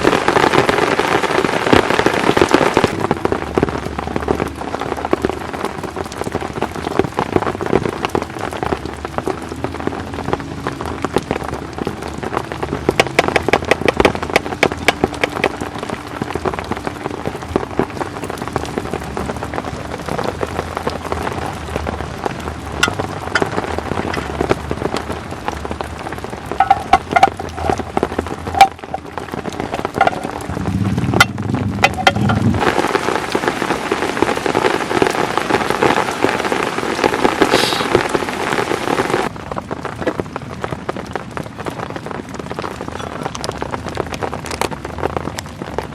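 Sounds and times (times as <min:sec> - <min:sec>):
heavy rain on a tent: 0:00.0 - 0:45.9
low rumble: 0:02.8 - 0:36.5.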